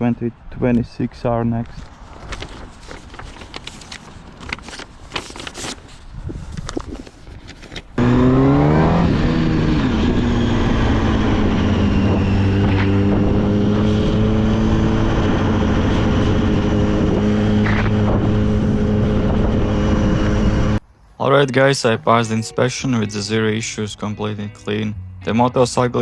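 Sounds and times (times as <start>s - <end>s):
motorcycle engine starting and revving: 8.0s - 20.8s.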